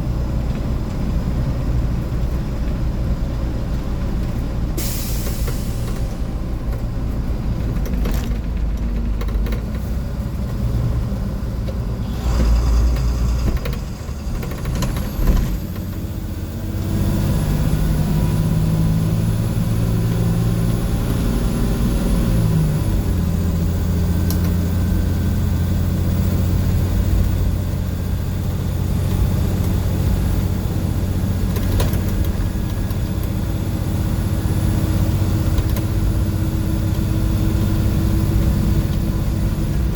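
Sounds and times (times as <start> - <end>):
diesel bus engine running: 0.0 - 39.9.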